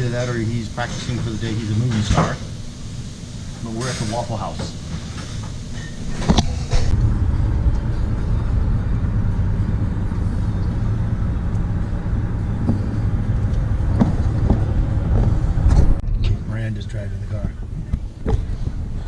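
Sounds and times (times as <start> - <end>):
car engine and road rumble: 5.5 - 19.0.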